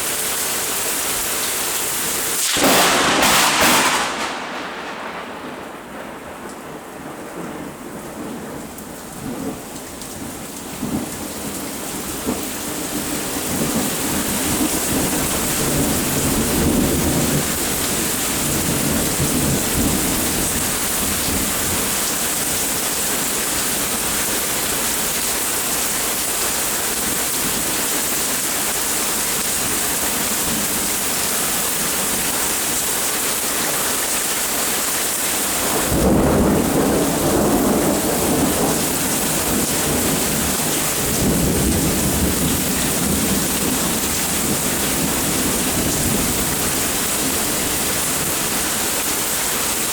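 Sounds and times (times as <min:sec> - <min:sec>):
rain falling: 0:00.0 - 0:49.9
thunder rumbling: 0:02.4 - 0:24.9, 0:35.5 - 0:48.7.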